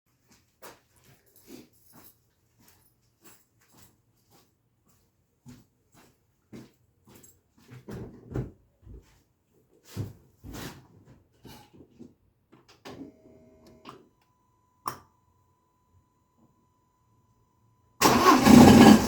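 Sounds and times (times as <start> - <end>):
engine knocking and clicking: 18.0 - 19.0.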